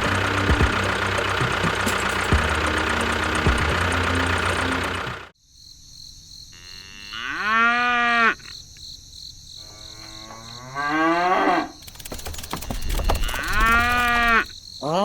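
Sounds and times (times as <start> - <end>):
cow mooing: 6.6 - 8.5, 9.6 - 11.8, 13.2 - 14.5.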